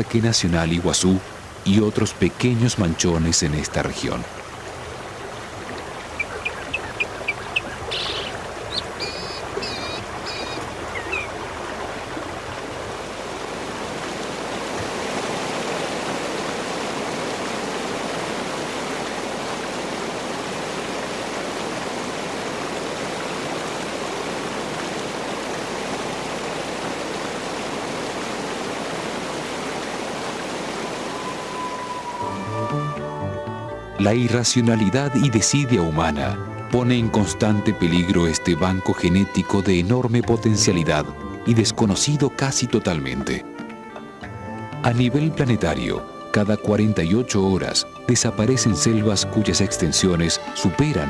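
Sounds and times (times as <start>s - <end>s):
flowing water rushing: 0.0s - 51.0s
birds chirping: 5.4s - 12.9s, 18.5s - 32.5s.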